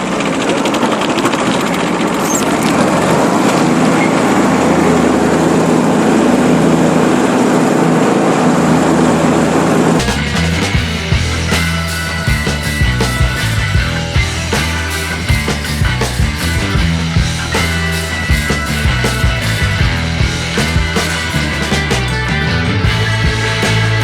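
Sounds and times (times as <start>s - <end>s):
small diesel mower engine running: 10.0s - 24.0s.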